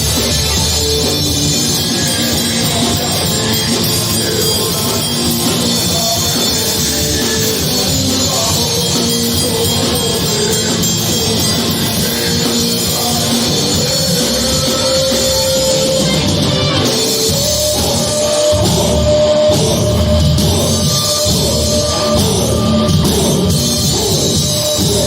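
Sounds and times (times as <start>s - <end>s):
drums: 0.0s - 25.0s
electric guitar: 0.0s - 25.0s
rock band playing: 0.0s - 25.0s.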